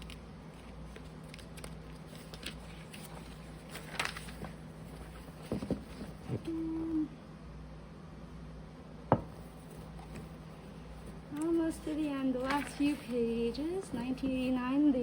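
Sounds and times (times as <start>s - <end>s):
magazine pages turning: 0.0s - 6.4s, 12.4s - 13.4s
paper rustling: 0.0s - 6.4s, 11.8s - 14.5s
hum-like tone: 6.2s - 7.4s.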